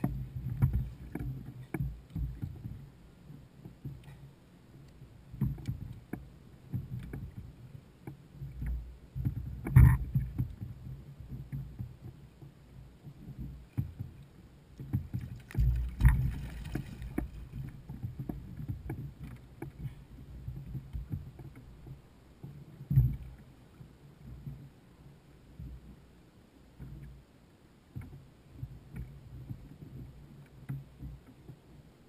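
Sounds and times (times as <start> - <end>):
water sloshing: 14.8 - 22.0.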